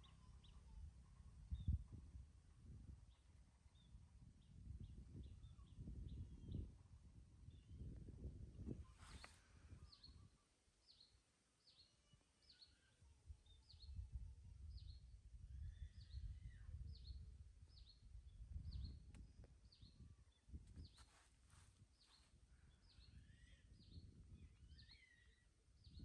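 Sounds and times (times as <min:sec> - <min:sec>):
bird chirping: 0:00.0 - 0:01.9, 0:08.9 - 0:14.0, 0:22.0 - 0:26.0.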